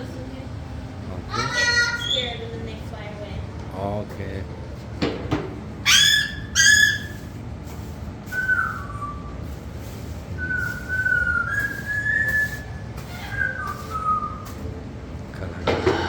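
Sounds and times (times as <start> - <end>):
person whistling slow notes: 8.3 - 9.4, 10.4 - 12.8.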